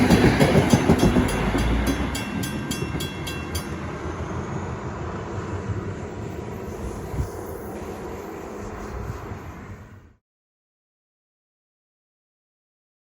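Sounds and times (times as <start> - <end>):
crossing bell ringing: 0.0 - 4.7
train rumbling past: 0.0 - 10.2.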